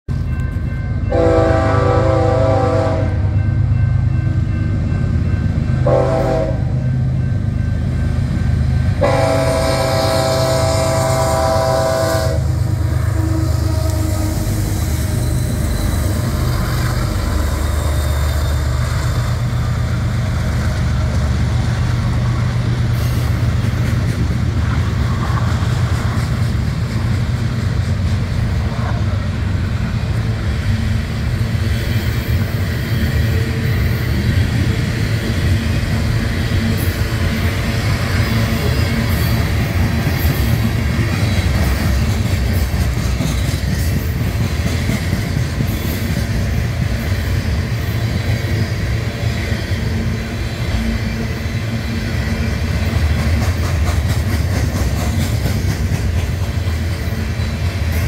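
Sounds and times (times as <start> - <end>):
steel wheels rattling on rail joints: 12.5 - 58.0.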